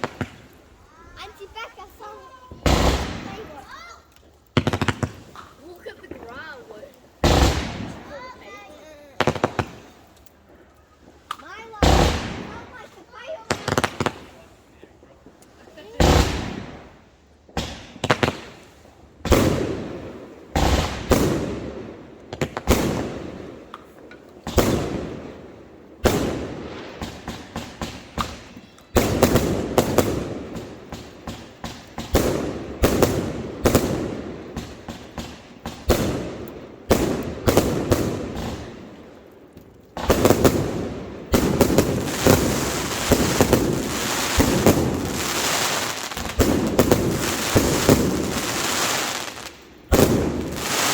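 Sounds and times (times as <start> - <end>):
fireworks banging and crackling: 0.0 - 50.9.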